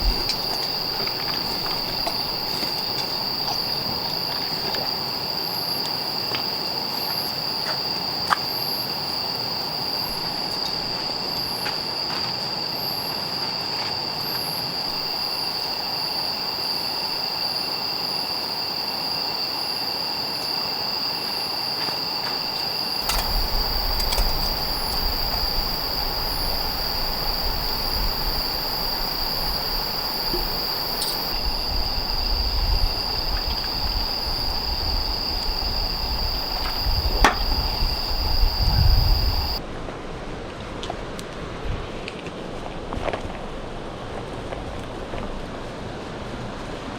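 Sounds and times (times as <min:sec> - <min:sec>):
insect chirps: 0:00.0 - 0:39.6
insects trilling: 0:00.0 - 0:39.6.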